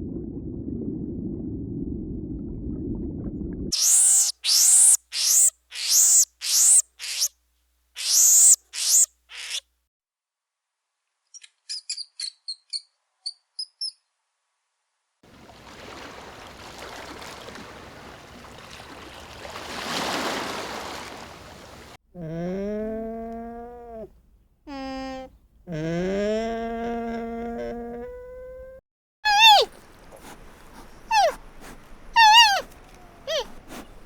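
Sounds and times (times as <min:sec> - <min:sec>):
bird screeching calls: 0:03.8 - 0:07.3, 0:08.0 - 0:09.6, 0:29.3 - 0:29.7, 0:32.2 - 0:32.7.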